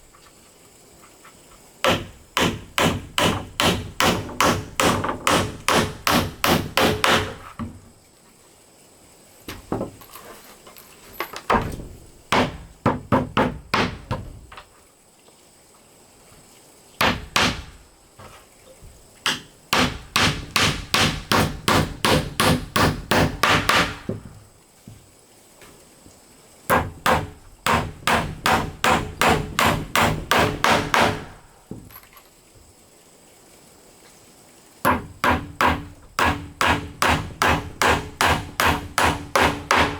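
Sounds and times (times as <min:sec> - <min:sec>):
hammer striking wood: 0:01.8 - 0:07.7, 0:12.3 - 0:14.3, 0:17.0 - 0:17.8, 0:19.3 - 0:24.2, 0:26.7 - 0:31.4, 0:34.9 - 0:39.9.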